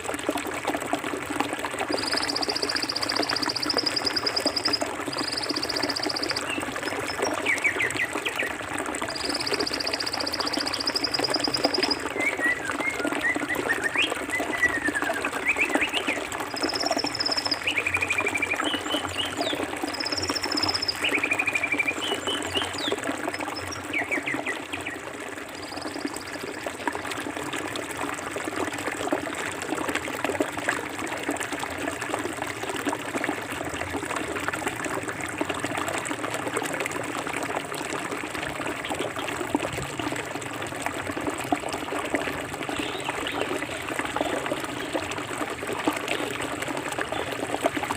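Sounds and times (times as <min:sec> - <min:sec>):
birds calling and chirping: 0:09.2 - 0:25.0.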